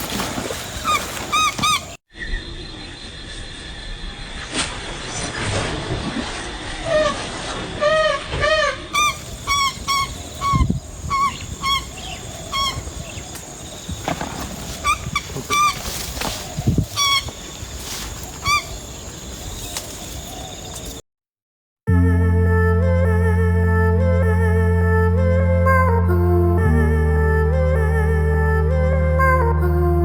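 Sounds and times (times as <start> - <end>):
bird calling: 0.4 - 2.4, 9.0 - 21.0
music: 21.9 - 30.0.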